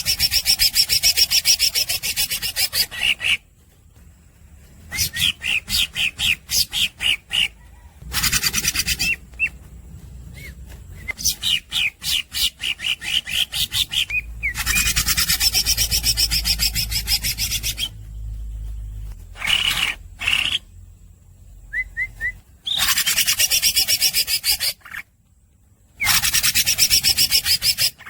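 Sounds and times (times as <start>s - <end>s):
bird singing rasping notes: 0.0s - 28.0s
rising whistled bird notes: 4.8s - 9.6s, 21.6s - 24.8s.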